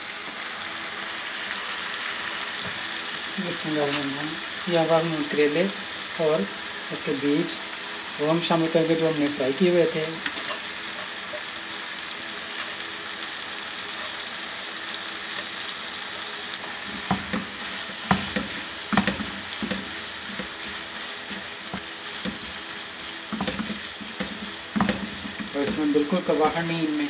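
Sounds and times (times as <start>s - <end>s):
sauce sizzling in a wok: 0.0s - 27.0s
spatula scraping and knocking pan: 16.2s - 26.0s.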